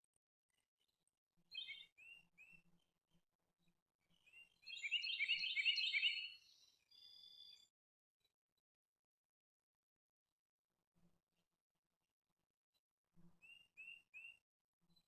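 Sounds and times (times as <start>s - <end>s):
songbird chirping: 1.5s - 2.6s, 4.1s - 7.7s.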